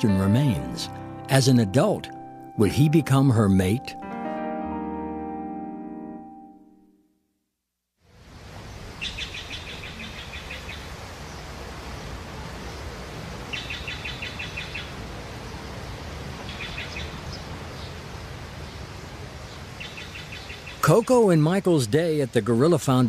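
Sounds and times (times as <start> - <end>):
steady outdoor hiss: 0.0 - 5.1, 8.0 - 23.0
songbird trilling: 9.0 - 10.9, 13.5 - 15.0, 16.4 - 18.0, 19.8 - 21.2.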